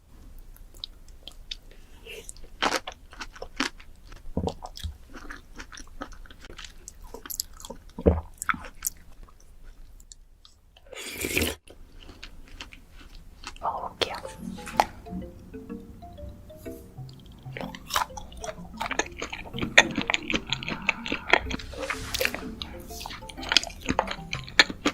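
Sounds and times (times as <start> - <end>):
crunchy chewing of fruit: 11.2 - 13.9.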